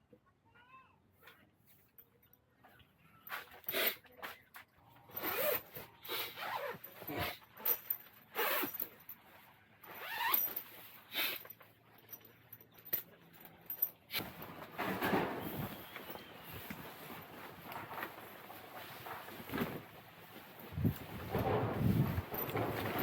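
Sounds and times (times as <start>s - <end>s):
zipper being pulled: 5.1s - 7.4s, 8.3s - 8.9s, 9.9s - 10.6s.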